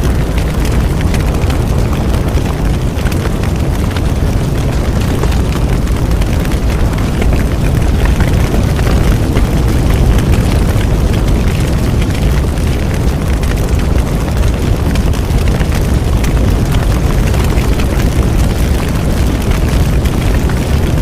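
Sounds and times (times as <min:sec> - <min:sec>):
bonfire roaring and crackling: 0:00.0 - 0:21.0.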